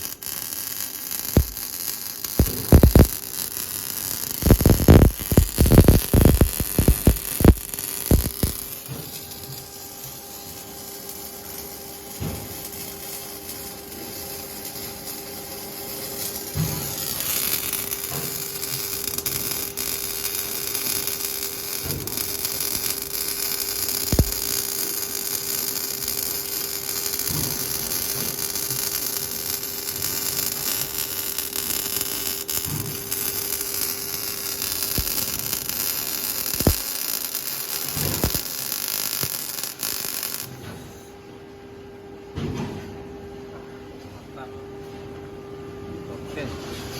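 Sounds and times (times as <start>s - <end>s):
steady hum: 0.0s - 27.3s
welding arc hissing buzz: 0.0s - 41.1s.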